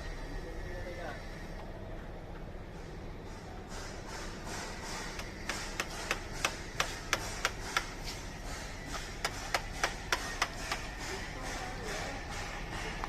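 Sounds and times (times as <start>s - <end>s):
low workshop background: 0.0s - 13.0s
sharp tool clicks: 4.5s - 8.0s, 9.0s - 11.6s.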